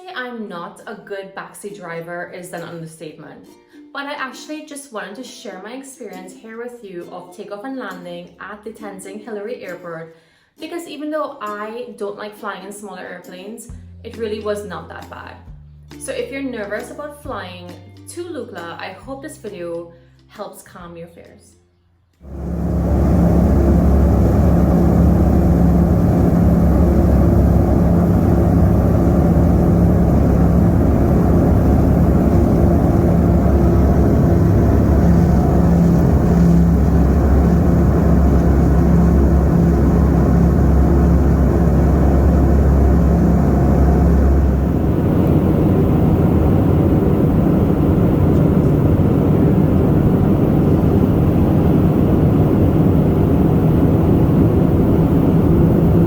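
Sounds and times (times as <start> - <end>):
deep rumble: 22.2 - 56.0
propeller airplane engine drone: 22.2 - 56.0.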